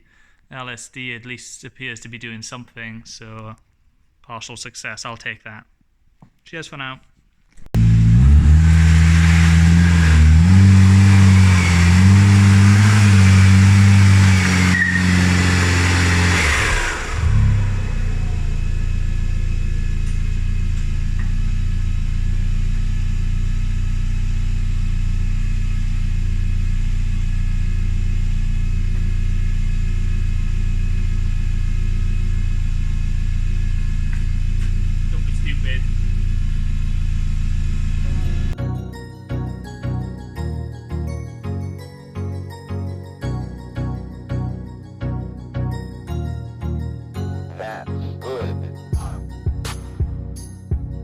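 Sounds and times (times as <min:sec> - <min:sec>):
van engine revving and idling: 0:07.8 - 0:38.6.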